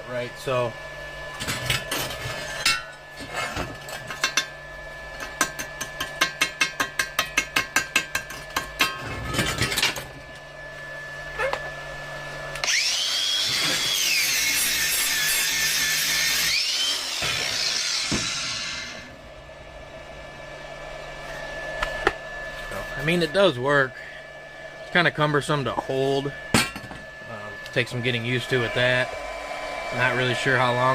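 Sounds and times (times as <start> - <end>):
power tool motor whining: 12.5 - 19.1.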